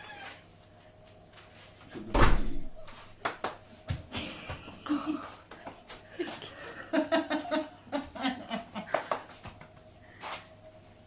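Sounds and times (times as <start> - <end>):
heavy thump: 2.1 - 2.8.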